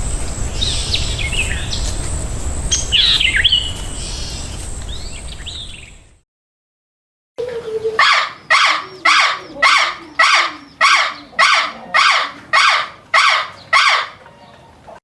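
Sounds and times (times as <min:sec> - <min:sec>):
animal harsh call: 0:08.0 - 0:14.3.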